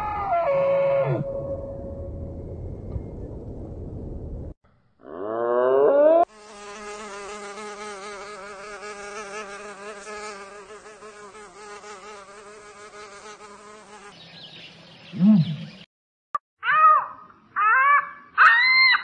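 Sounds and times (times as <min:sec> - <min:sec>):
insect buzzing in flight: 0:06.3 - 0:14.2.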